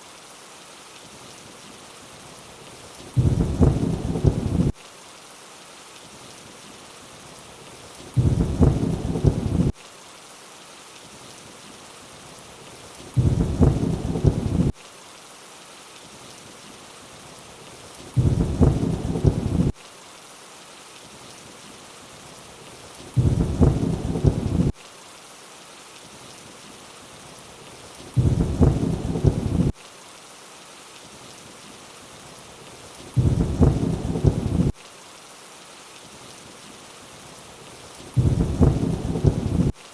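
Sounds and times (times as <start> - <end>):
rain hissing: 0.0 - 39.9
low rumble of thunder: 3.2 - 4.7, 8.2 - 9.7, 13.2 - 14.7, 18.2 - 19.7, 23.2 - 24.7, 28.2 - 29.7, 33.2 - 34.8, 38.2 - 39.7.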